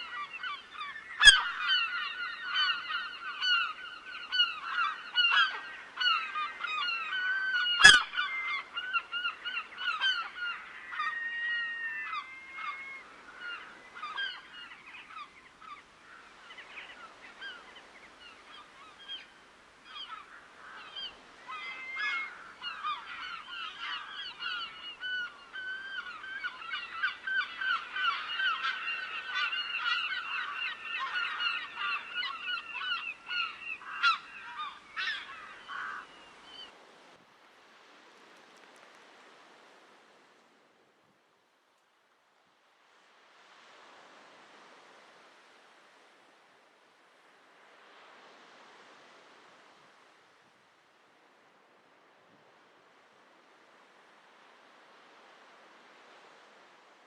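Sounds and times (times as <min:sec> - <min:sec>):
geese honking: 0:07.6 - 0:08.1.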